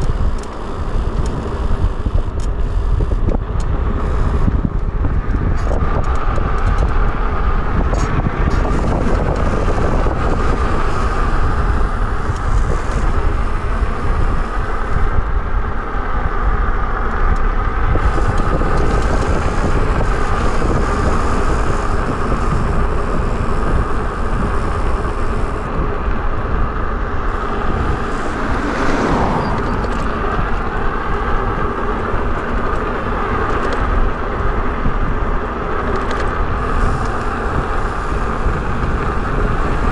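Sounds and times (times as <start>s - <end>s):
road noise with wavering whine: 0.0s - 39.9s
wind buffeting microphone: 0.0s - 39.9s
vehicle passing: 25.3s - 33.2s.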